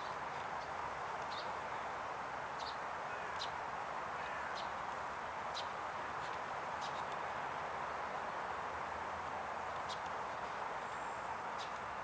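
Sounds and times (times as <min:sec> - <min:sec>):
small birds chirping: 0:00.0 - 0:03.6, 0:04.2 - 0:04.9, 0:05.5 - 0:07.3, 0:09.7 - 0:12.0
steady background hiss: 0:00.0 - 0:12.0.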